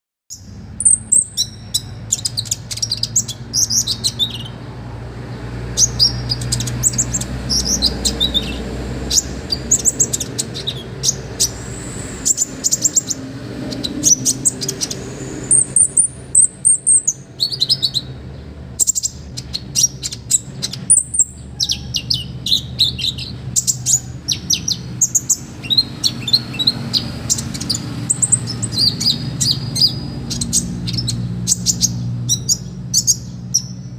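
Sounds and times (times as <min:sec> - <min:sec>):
songbird singing: 0:00.3 - 0:33.9
steady low hum: 0:00.5 - 0:17.5.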